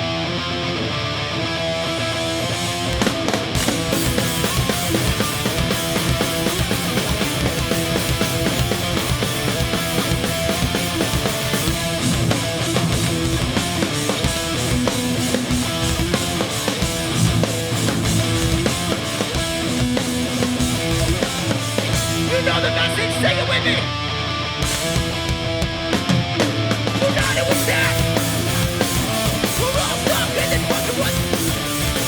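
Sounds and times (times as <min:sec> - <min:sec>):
distorted electric guitars: 0:00.0 - 0:32.0
drums: 0:00.0 - 0:32.0.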